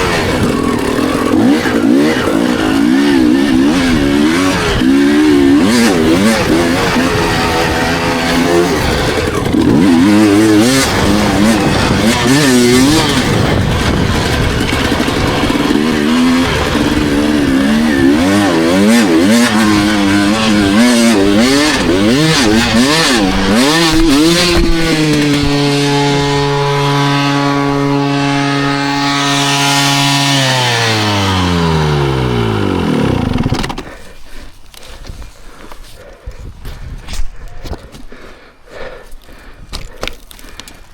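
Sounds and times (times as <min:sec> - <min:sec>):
dirt bike engine revving: 0:00.0 - 0:34.1
wind rush: 0:10.5 - 0:18.0.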